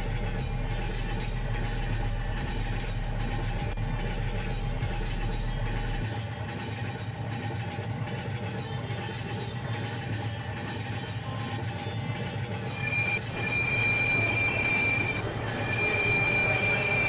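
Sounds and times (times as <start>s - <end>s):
vehicle engine running: 0.0s - 6.1s.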